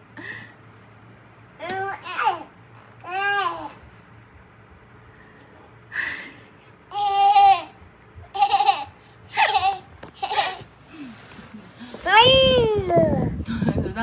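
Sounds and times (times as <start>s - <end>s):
baby babbling and laughing: 1.6s - 3.8s, 6.9s - 7.8s, 12.0s - 13.4s.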